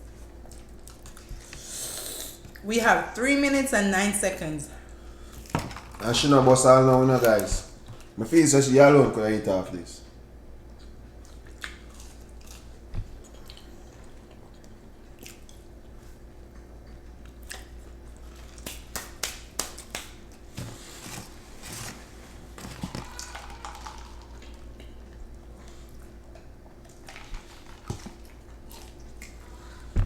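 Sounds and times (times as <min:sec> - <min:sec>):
chewing and crunching: 0:00.0 - 0:01.7, 0:10.6 - 0:19.1, 0:19.7 - 0:29.9.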